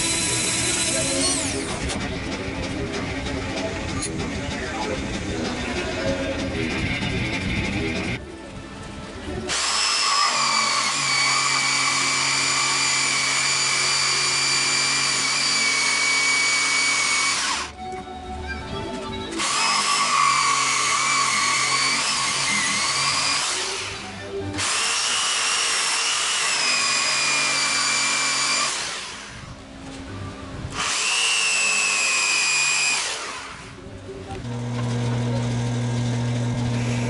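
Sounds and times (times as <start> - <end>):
electric power tool whining: 0.0 - 2.0, 9.5 - 17.9, 19.3 - 37.0.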